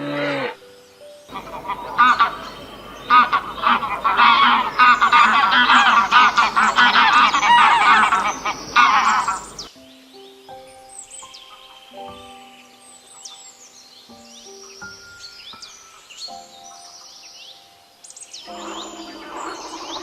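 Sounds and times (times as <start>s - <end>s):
flock of birds calling: 1.3s - 9.7s, 18.5s - 20.0s.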